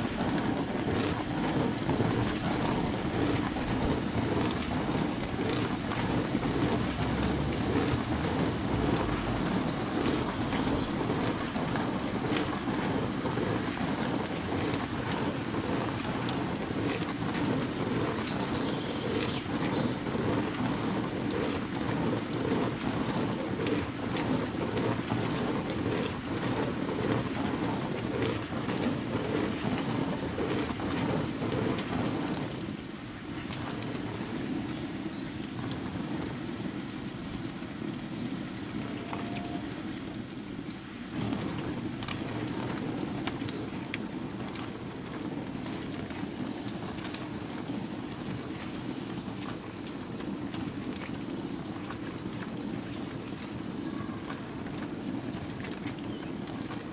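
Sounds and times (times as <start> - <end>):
washing machine drum turning: 0.0 - 18.1
water and laundry sloshing: 0.0 - 56.9.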